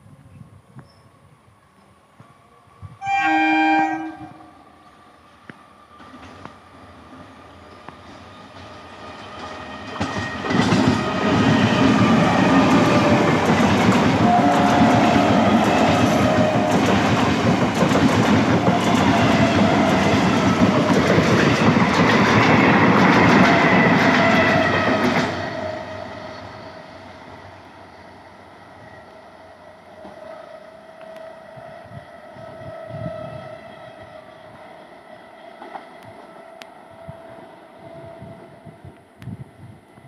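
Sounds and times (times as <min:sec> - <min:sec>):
train wheels clattering over rail joints: 0:07.8 - 0:25.4.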